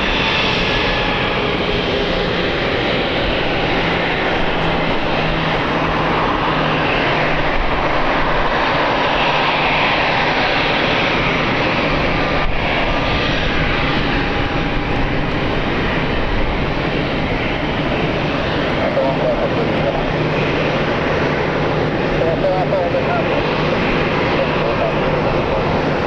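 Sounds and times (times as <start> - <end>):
airliner engines on approach: 0.0 - 26.0.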